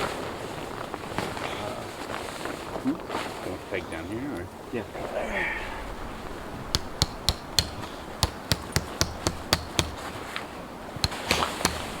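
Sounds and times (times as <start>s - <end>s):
tent pegs hammered into ground: 6.6s - 12.0s.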